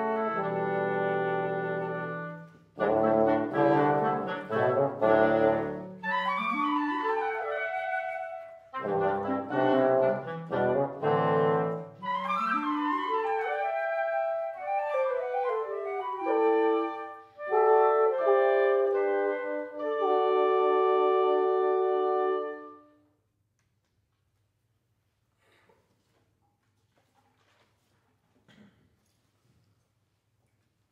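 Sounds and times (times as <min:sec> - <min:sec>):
wind quintet playing chords: 0:00.0 - 0:23.0.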